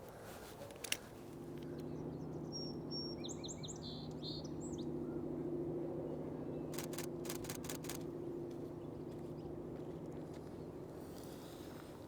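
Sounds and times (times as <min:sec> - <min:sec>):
steady low hum: 0:05.7 - 0:09.7
sharp clicks: 0:06.8 - 0:08.1.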